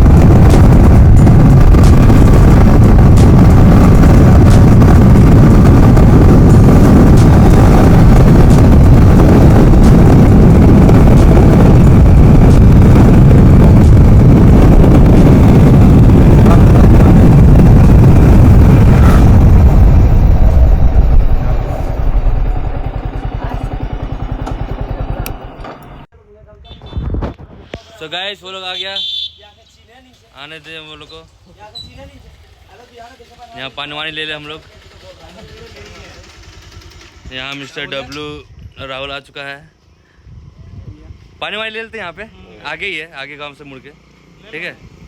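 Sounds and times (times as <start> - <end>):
motorcycle engine: 0.0 - 26.1, 31.3 - 37.9
road noise: 0.0 - 26.1, 27.6 - 38.6, 42.3 - 45.0.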